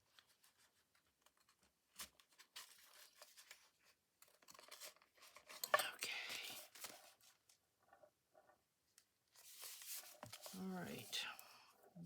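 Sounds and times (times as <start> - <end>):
paper pages rustling: 0.0 - 5.7, 6.4 - 7.6, 9.3 - 11.5.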